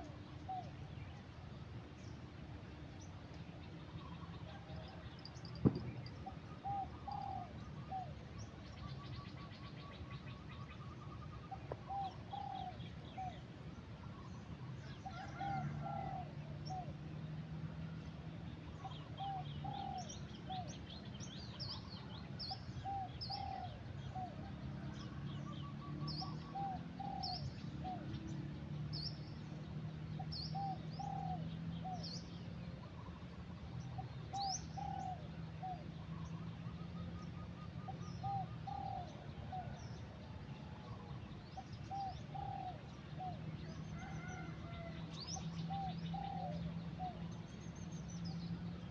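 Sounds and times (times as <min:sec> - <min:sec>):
doves cooing: 0:11.2 - 0:13.4, 0:15.1 - 0:16.9, 0:18.8 - 0:20.7, 0:22.8 - 0:24.6, 0:32.8 - 0:47.3.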